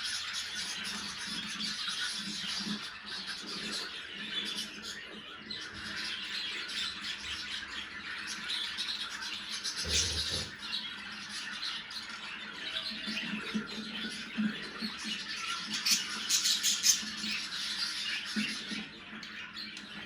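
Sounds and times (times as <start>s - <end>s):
budgerigars chattering: 5.7s - 11.0s.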